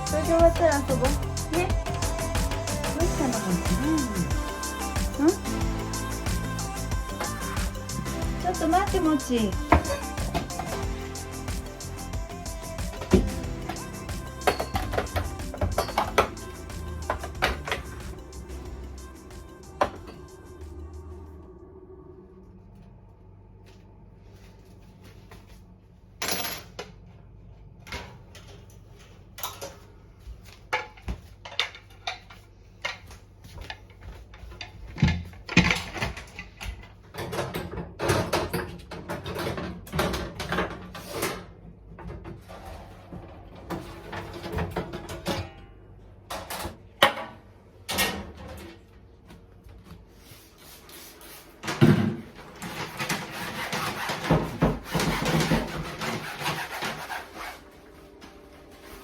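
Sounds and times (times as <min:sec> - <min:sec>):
background music: 0:00.0 - 0:22.3
scrubbing: 0:52.6 - 0:57.8.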